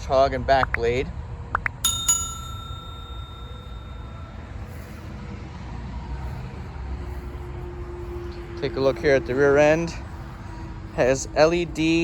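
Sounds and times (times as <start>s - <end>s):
bell-like metallic ring: 1.8s - 5.3s.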